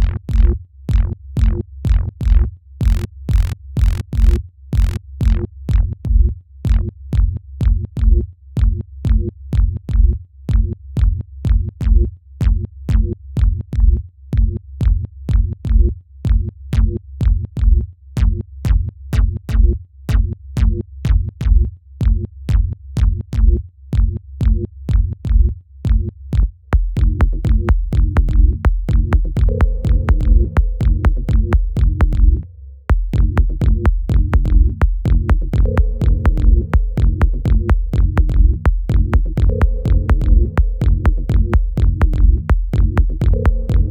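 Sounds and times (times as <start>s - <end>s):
electronic dance track: 26.8s - 43.9s.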